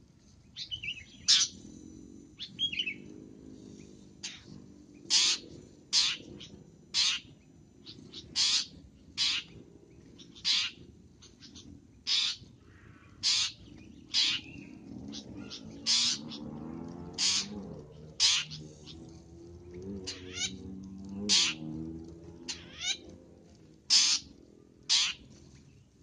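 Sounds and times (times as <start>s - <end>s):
bird harsh rasping calls: 0.6s - 1.6s, 4.2s - 19.1s, 19.9s - 21.8s, 22.4s - 23.1s, 23.8s - 25.3s.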